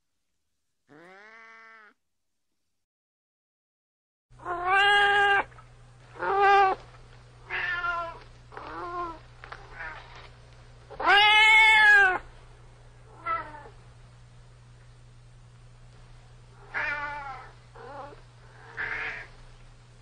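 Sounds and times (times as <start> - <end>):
cat meowing: 0.9 - 2.0, 4.4 - 5.5, 6.2 - 6.8, 7.5 - 10.2, 11.0 - 12.2, 13.2 - 13.7, 16.6 - 19.3.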